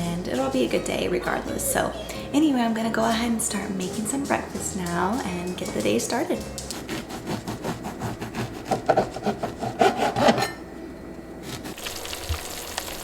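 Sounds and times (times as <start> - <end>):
utensil sawing through food: 6.7 - 10.5.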